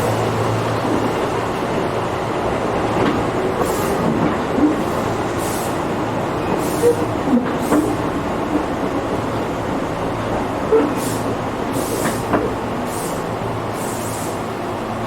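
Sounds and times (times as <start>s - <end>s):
train wheels rumbling on track: 0.0s - 15.0s
hiss: 3.6s - 4.1s, 4.8s - 8.2s, 10.8s - 14.6s
wheels clicking over rail joints: 10.7s - 13.0s.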